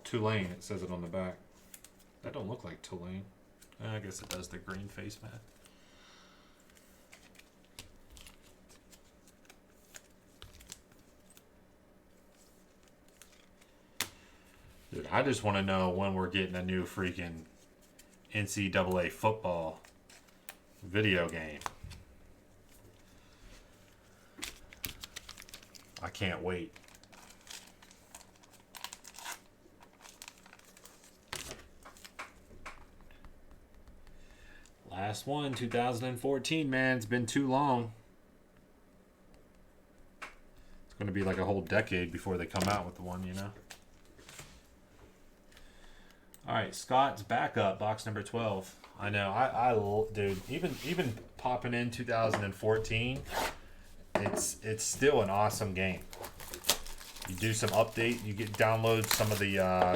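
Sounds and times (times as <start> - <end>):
packaging crinkling and tearing: 6.7 - 11.5, 12.1 - 14.1, 24.2 - 32.4, 42.5 - 44.1, 54.8 - 59.9
trading cards being flipped: 12.2 - 14.2, 56.0 - 59.9.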